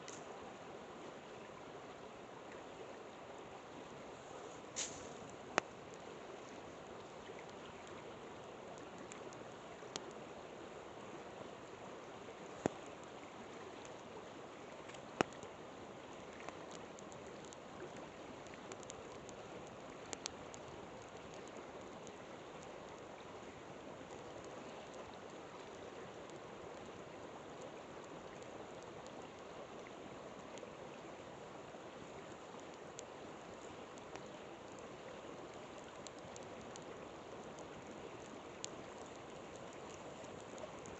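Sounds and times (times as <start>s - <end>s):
river flowing: 0.0s - 40.9s
campfire crackling and popping: 4.7s - 6.1s, 6.8s - 10.2s, 14.9s - 15.5s, 16.2s - 27.2s, 27.8s - 30.7s, 32.3s - 40.9s.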